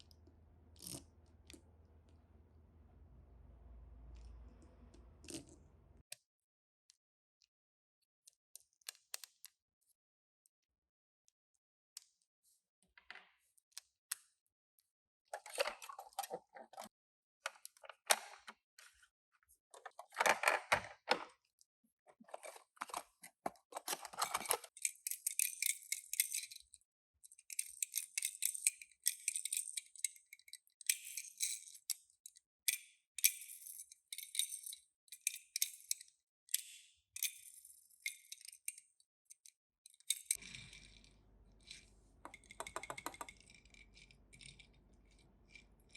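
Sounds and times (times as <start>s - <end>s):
packaging and toy cars rattling: 22.2s - 24.8s.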